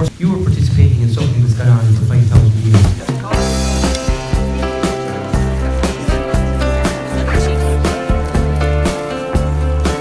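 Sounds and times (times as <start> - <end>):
person speaking: 0.0 - 3.7, 6.6 - 8.2
background music with steady beat: 2.7 - 10.0.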